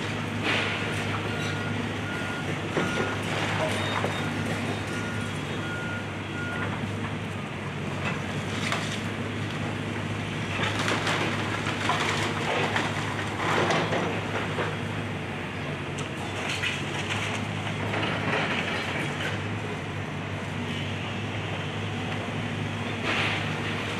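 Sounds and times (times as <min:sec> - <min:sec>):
diesel excavator engine: 0:00.0 - 0:23.9
debris crunching and cracking: 0:10.5 - 0:14.7.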